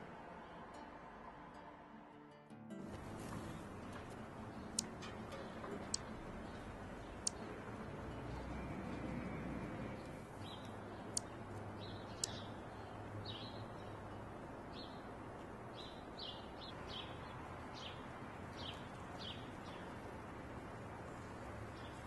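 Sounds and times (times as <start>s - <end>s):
sharp high ticks: 4.7s - 6.1s, 10.4s - 11.4s, 12.2s - 12.5s
small bird chirping: 10.4s - 13.9s.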